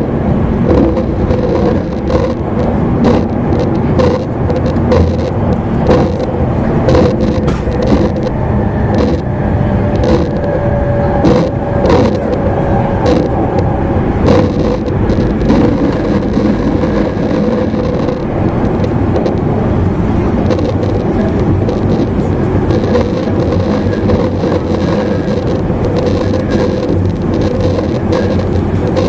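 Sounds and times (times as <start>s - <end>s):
rail joint clicks: 0.0s - 29.0s
train wheels rumbling on rail: 0.0s - 29.0s
faint high whine: 19.4s - 29.0s.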